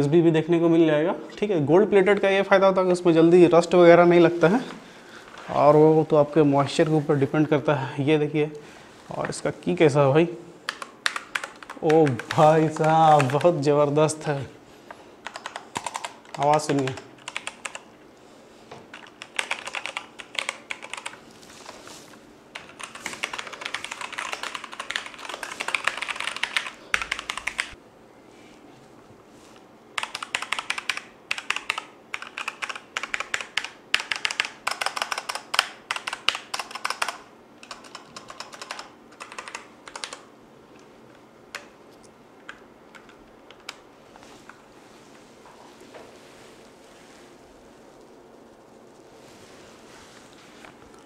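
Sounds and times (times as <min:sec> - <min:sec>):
mechanical keyboard typing: 0:10.7 - 0:13.6, 0:15.2 - 0:17.9, 0:18.9 - 0:21.2, 0:22.6 - 0:27.8, 0:30.0 - 0:40.3.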